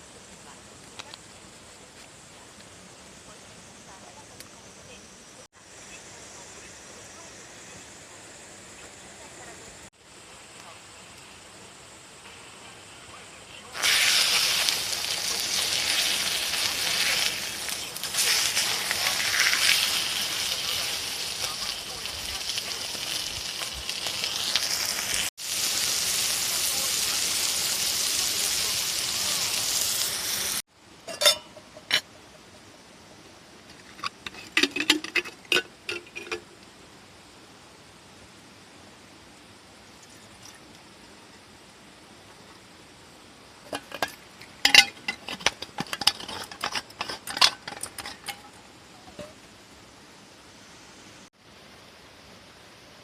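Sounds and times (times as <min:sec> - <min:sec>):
rain hissing on a tarp: 0:05.4 - 0:30.8
small objects clinking and rattling: 0:43.7 - 0:48.6.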